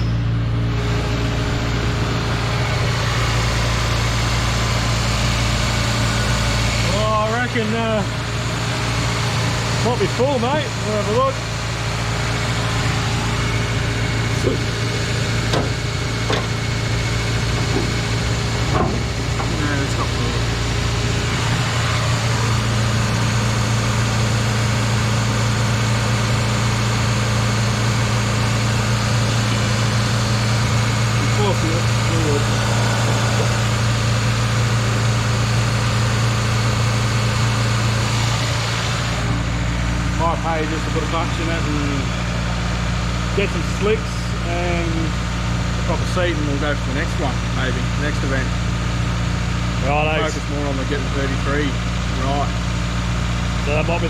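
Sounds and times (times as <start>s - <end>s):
rally car engine idling: 0.0s - 54.0s.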